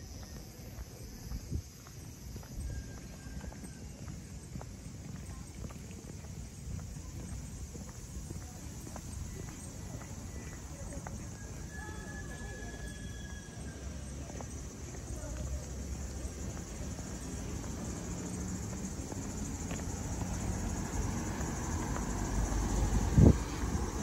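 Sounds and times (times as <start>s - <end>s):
train rumbling: 15.5s - 24.0s.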